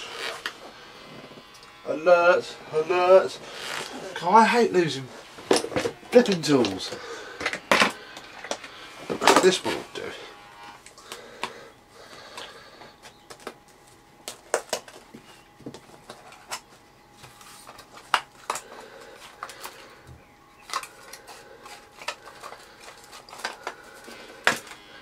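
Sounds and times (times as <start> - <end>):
plastic parts being handled: 12.3 - 19.9, 20.6 - 24.8.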